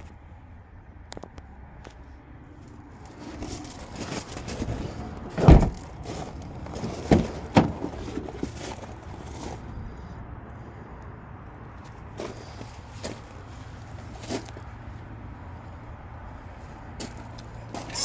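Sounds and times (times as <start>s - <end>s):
rustling inside a car: 1.8s - 10.7s, 11.4s - 15.8s, 16.4s - 18.0s
heavy thud: 4.0s - 8.6s.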